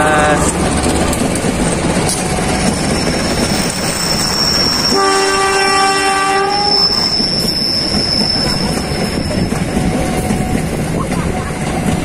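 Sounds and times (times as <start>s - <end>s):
train rumbling on tracks: 0.0s - 12.0s
high steady squeal: 2.1s - 5.7s, 6.4s - 9.7s
train horn blast: 4.3s - 7.2s.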